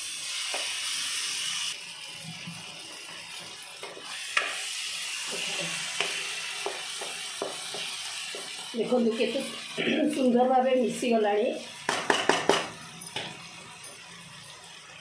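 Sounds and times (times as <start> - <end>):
masala sizzling in a pan: 0.0 - 15.0
spatula tapping a pan: 6.0 - 8.6, 11.8 - 13.4.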